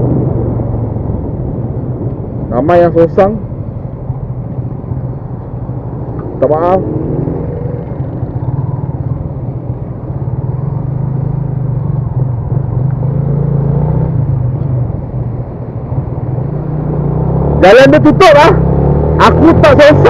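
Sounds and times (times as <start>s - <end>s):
wind noise on microphone: 0.0s - 9.2s.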